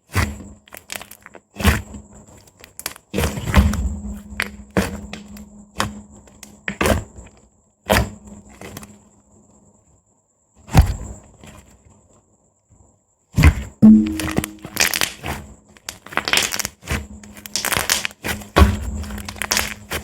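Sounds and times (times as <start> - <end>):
slime popping and squelching: 13.8 - 15.2, 17.4 - 18.2, 19.2 - 20.0.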